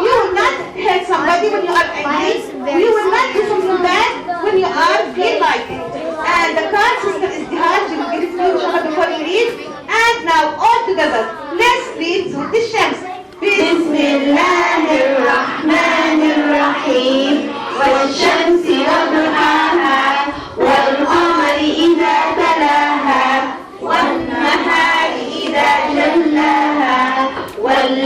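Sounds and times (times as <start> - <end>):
children singing: 13.0 - 28.0.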